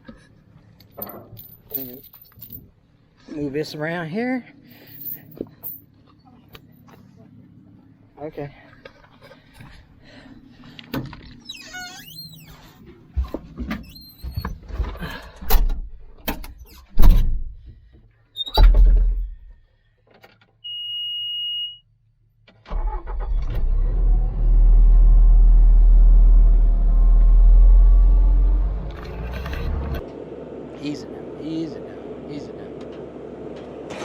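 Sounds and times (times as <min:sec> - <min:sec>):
metal chain clanking: 0:00.8 - 0:02.8, 0:04.8 - 0:06.0
short steady beep: 0:20.7 - 0:21.8.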